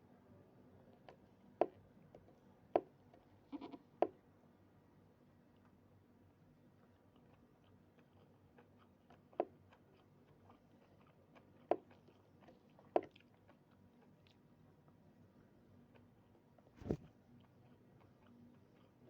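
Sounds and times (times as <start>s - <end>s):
person chewing food: 6.9s - 14.8s, 15.8s - 19.0s.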